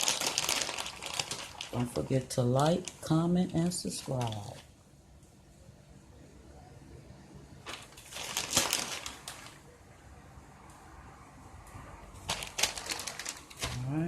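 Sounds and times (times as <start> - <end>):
rustling crunching: 0.0 - 3.1, 7.6 - 9.6, 12.3 - 13.9.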